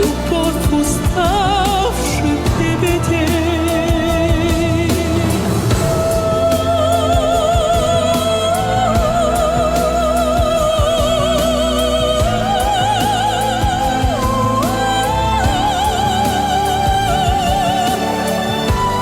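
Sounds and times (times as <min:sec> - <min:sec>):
person singing wordless vocalise: 0:00.0 - 0:19.0
pop backing track with beat: 0:00.0 - 0:19.0.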